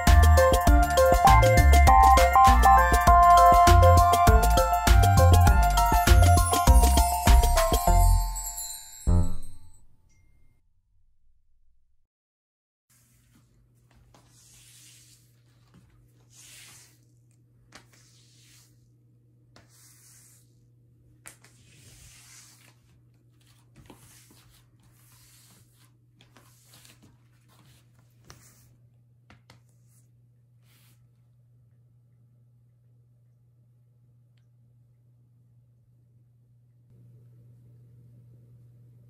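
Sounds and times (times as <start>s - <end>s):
broom sweeping swishes: 12.9s - 18.9s, 19.6s - 20.6s, 21.3s - 22.9s, 23.9s - 28.7s
low steady hum: 28.8s - 39.0s.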